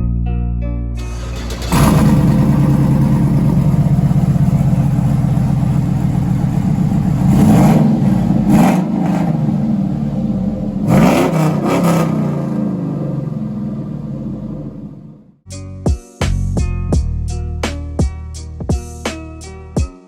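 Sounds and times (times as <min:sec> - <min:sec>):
car engine idling and revving: 0:01.0 - 0:15.4.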